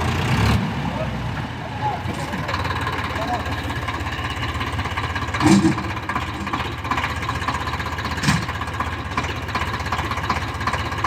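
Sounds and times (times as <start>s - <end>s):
tractor diesel engine running: 0.0s - 11.0s
loud knocks: 5.4s - 6.8s.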